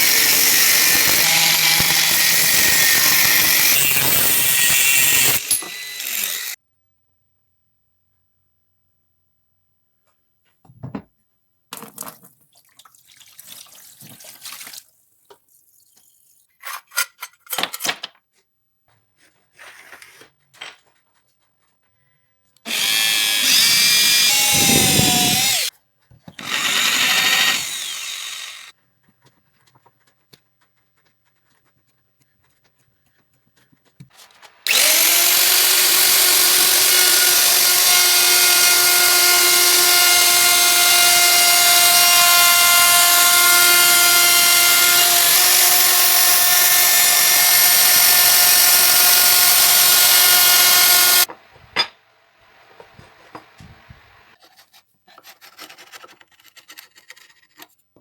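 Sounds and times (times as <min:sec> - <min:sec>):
power tool motor whining: 0:00.0 - 0:06.6, 0:22.7 - 0:25.7, 0:26.4 - 0:28.7, 0:34.6 - 0:51.3.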